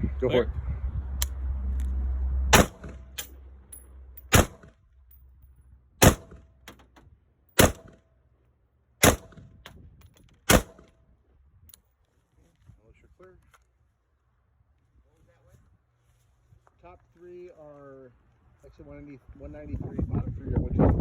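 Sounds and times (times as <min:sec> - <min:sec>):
rifle shots: 0:02.5 - 0:03.3, 0:04.3 - 0:04.7, 0:06.0 - 0:06.5, 0:07.6 - 0:08.0, 0:09.0 - 0:09.4, 0:10.5 - 0:10.9.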